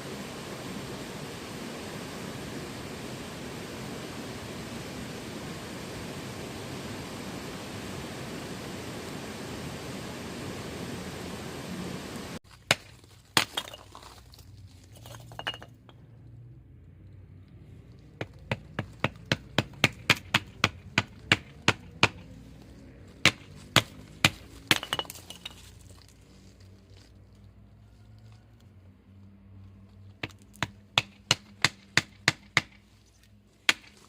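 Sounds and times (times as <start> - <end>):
steady hiss: 0.0 - 12.4.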